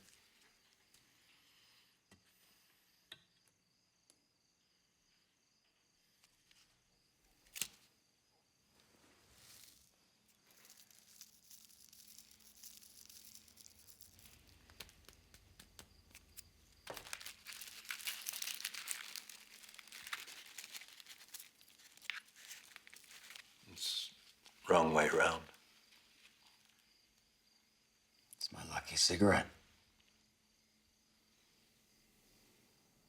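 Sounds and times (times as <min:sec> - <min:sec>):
cigarette paper crinkling: 0:07.4 - 0:07.9, 0:09.4 - 0:24.6.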